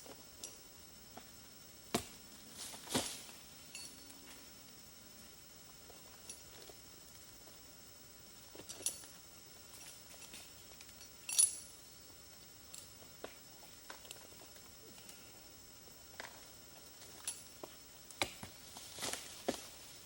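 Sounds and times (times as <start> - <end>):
faint high hiss: 0.0 - 20.0
light metallic clinks: 3.7 - 4.3, 8.6 - 11.8.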